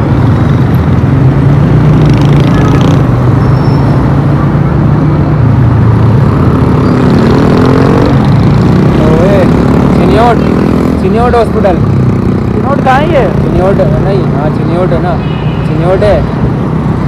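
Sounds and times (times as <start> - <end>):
road and wind noise: 0.0 - 17.0
motorcycle engine running: 4.8 - 14.7.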